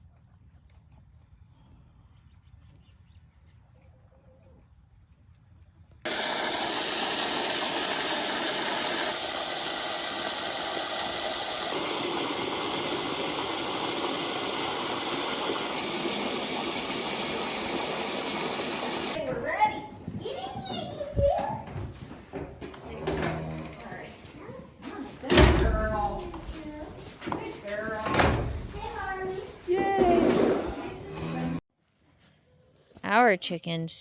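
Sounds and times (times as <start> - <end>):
loud steady rushing hiss: 6.1 - 19.2.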